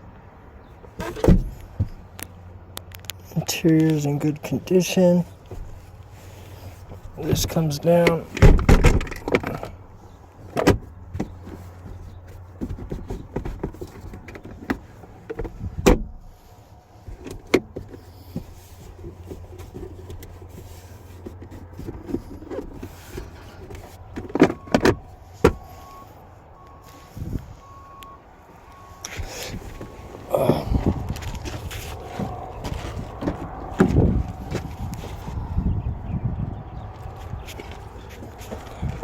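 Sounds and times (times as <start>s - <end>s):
parts clicking and knocking: 6.8s - 16.2s.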